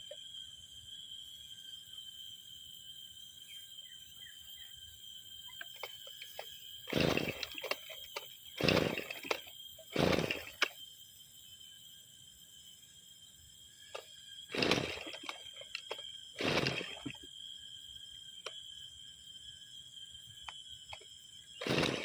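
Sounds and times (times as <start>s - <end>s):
recoil starter cord pulls: 5.6s - 10.8s, 13.9s - 17.2s, 20.4s - 21.0s, 21.6s - 22.0s.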